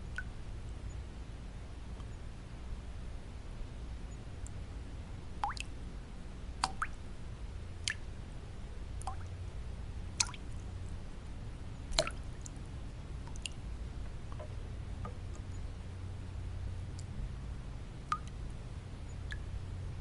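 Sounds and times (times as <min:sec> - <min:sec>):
low white-noise hum: 0:00.0 - 0:20.0
water drops plinking: 0:05.4 - 0:05.7, 0:12.0 - 0:12.2, 0:18.1 - 0:18.3.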